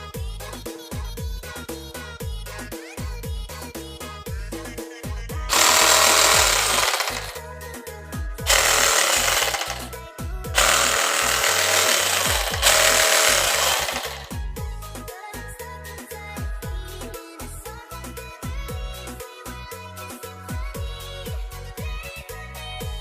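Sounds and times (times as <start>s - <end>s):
background music with steady beat: 0.0s - 23.0s
cordless jigsaw running: 5.5s - 7.4s, 8.5s - 9.9s, 10.6s - 14.4s.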